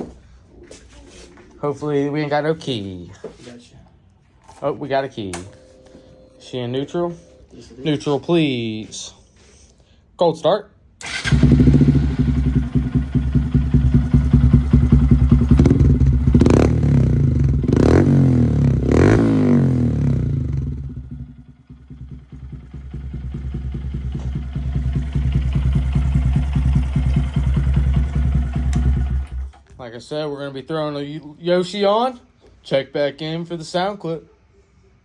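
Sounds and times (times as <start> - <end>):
motorcycle engine idling: 11.0 - 29.6.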